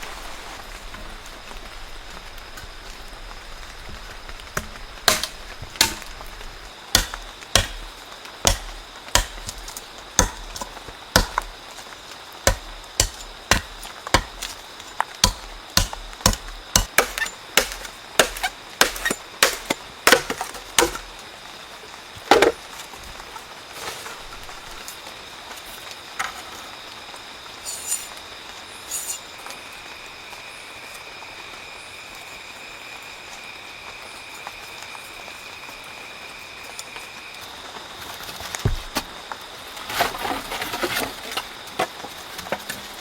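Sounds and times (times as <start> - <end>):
blade chopping wood: 4.5 - 11.7, 12.5 - 21.2, 22.2 - 22.6, 38.6 - 39.1.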